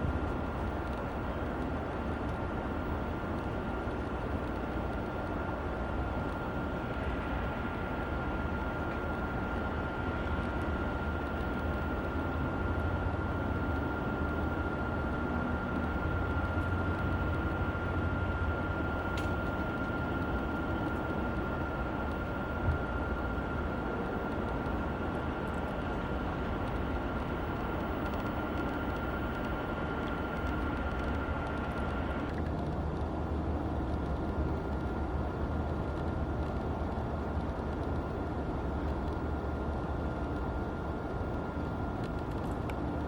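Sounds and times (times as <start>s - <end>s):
outdoor background rumble: 0.0s - 43.0s.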